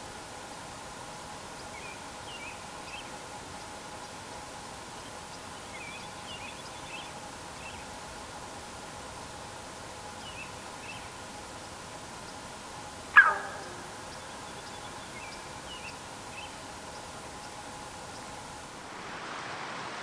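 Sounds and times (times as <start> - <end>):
outdoor hiss: 0.0 - 20.0
loud animal call: 13.2 - 14.1
small birds chirping: 13.2 - 18.4.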